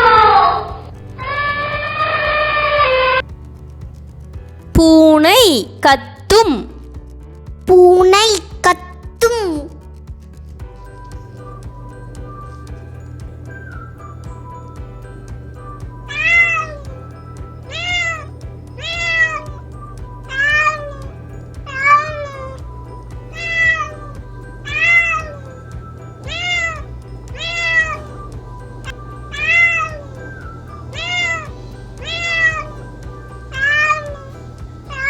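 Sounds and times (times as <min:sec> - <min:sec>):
cat meowing: 0:00.0 - 0:03.2, 0:16.1 - 0:17.0, 0:17.7 - 0:19.7, 0:20.3 - 0:21.1, 0:21.7 - 0:22.6, 0:23.3 - 0:25.5, 0:26.3 - 0:28.1, 0:29.3 - 0:30.1, 0:30.9 - 0:32.8, 0:33.5 - 0:34.3
background music: 0:00.0 - 0:35.0.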